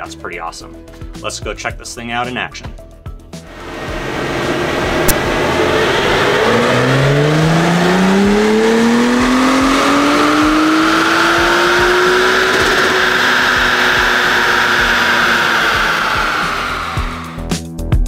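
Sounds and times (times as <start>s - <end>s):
dyno rollers and cooling fan: 3.5s - 17.4s
car engine revving up: 3.5s - 17.5s.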